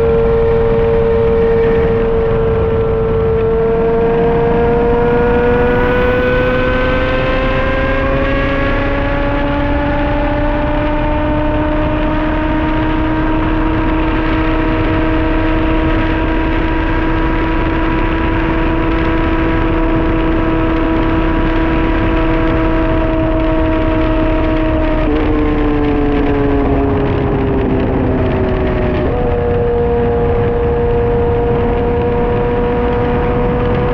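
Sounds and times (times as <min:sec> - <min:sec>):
heavy wind rush: 0:00.0 - 0:33.9
motorcycle engine running hard: 0:00.0 - 0:33.9.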